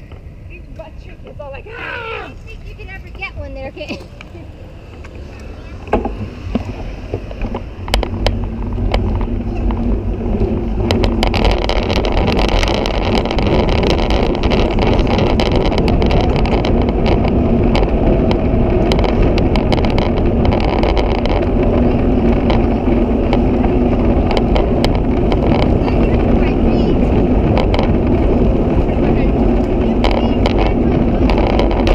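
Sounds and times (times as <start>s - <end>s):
wind rushing over microphone: 0.0s - 31.9s
bicycle clicks and rattles: 3.7s - 31.9s.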